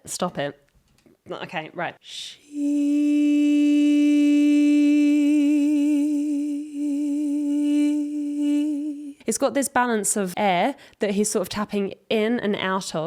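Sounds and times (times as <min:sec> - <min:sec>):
person humming a held note: 0:02.4 - 0:09.2.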